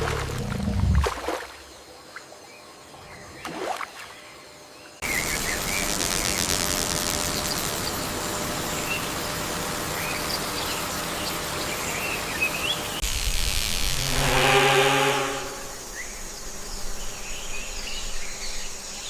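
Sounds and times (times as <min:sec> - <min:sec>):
insect drone: 0:04.2 - 0:19.0.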